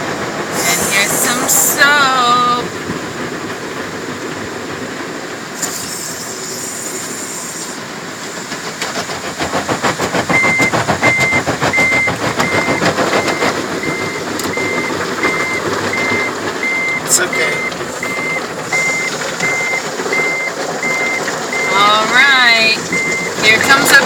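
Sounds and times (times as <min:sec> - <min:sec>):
soap spraying with a hiss: 0:00.5 - 0:01.5, 0:05.6 - 0:07.8
water drumming on car body: 0:07.8 - 0:24.0
electronic beeps: 0:10.3 - 0:24.0.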